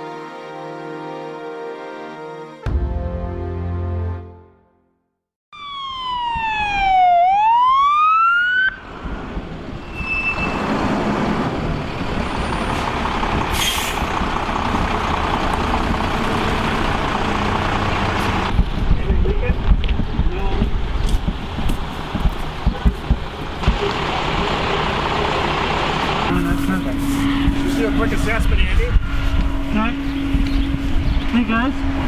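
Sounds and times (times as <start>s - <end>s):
emergency siren sweeping: 5.5s - 18.5s, 23.6s - 32.0s
steady rumbling noise: 10.8s - 32.0s.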